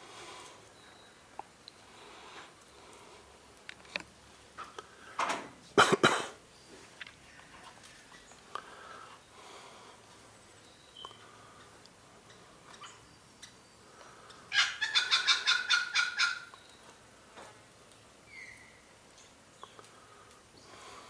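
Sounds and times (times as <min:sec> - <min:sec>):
bird harsh pulsed calls: 0:12.2 - 0:16.9, 0:18.3 - 0:18.8.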